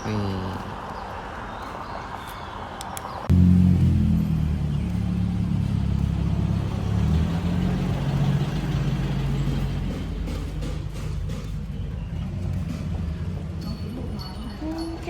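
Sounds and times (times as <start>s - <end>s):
vehicle engine running: 3.3s - 14.1s.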